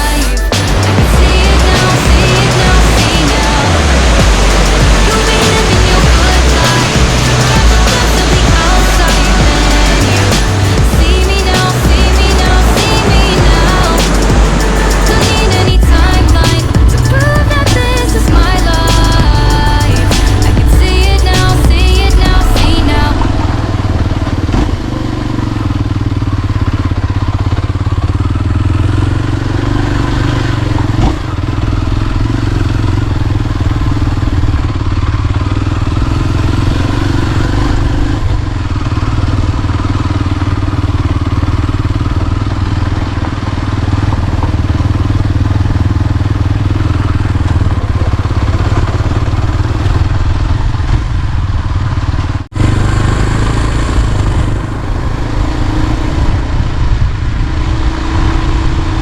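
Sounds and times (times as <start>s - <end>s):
motorcycle engine running: 0.0s - 59.0s
road rumble: 0.0s - 59.0s.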